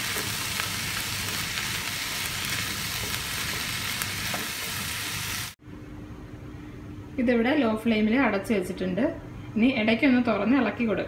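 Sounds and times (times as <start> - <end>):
vegetables sizzling in oil: 0.0 - 5.6.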